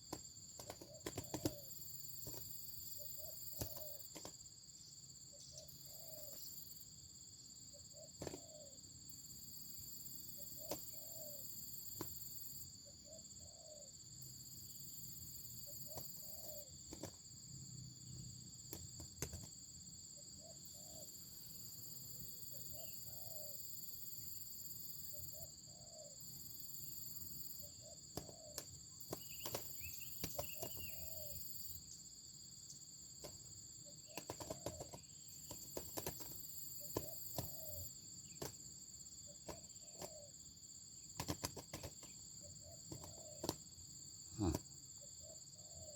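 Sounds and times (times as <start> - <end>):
insect trilling: 0.0 - 6.9, 9.9 - 19.6, 20.2 - 32.0, 32.6 - 45.9
dove cooing: 0.6 - 1.7, 8.0 - 8.8, 10.6 - 11.5, 27.8 - 29.6, 34.1 - 35.0, 36.8 - 37.9, 42.6 - 43.6.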